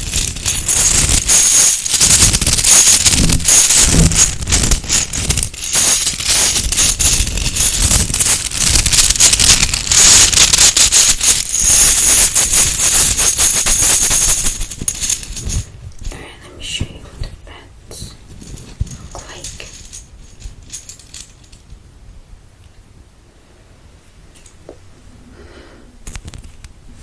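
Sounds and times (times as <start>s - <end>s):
small hard objects rattling: 0.0s - 15.7s, 18.3s - 21.6s.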